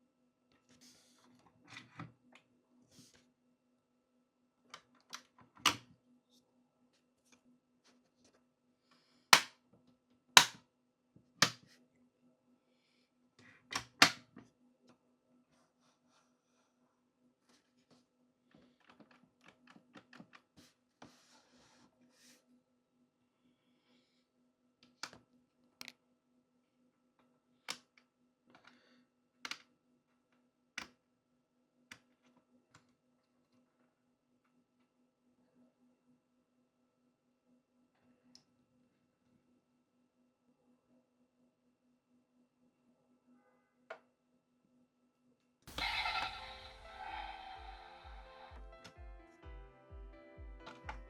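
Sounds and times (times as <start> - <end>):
model car clicks and taps: 10.4 - 10.6.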